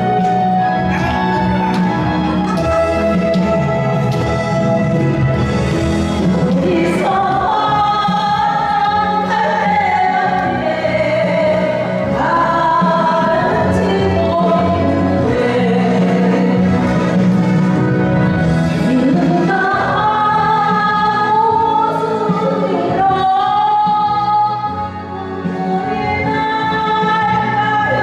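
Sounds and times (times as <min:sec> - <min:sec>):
instrumental accompaniment: 0:00.0 - 0:28.0
person singing a ballad: 0:06.1 - 0:28.0.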